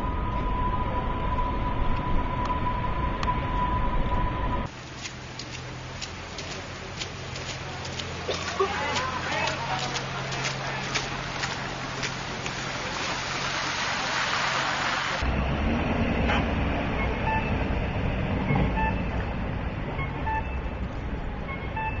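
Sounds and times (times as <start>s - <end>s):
low hum: 0.0s - 14.0s
vehicle engines running: 4.6s - 21.9s
short electronic beeps: 17.0s - 17.5s, 18.5s - 19.1s, 20.0s - 20.8s, 21.5s - 22.0s.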